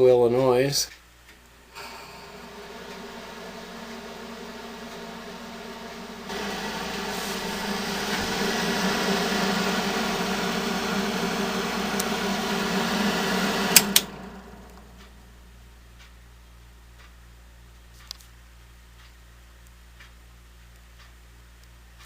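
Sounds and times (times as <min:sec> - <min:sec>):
exhaust fan humming: 0:01.6 - 0:15.9.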